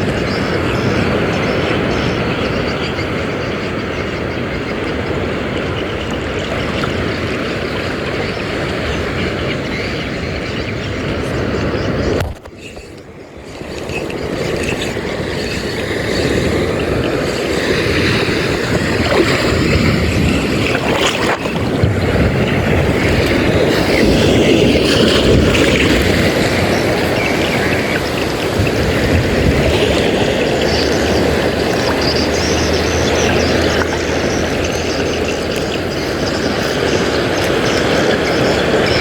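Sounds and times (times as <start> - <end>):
water rushing: 0.0 - 39.0
wind on microphone: 0.0 - 39.0
low engine hum: 21.4 - 39.0.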